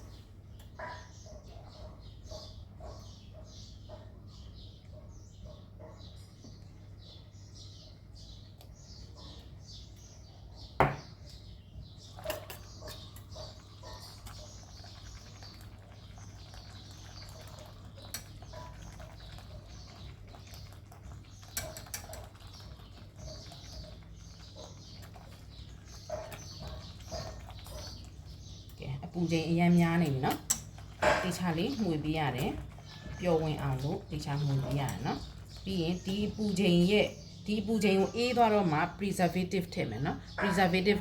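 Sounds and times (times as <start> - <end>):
small birds chirping: 0.0 - 41.0
utensil clinking against pot: 16.9 - 24.0, 30.0 - 36.4.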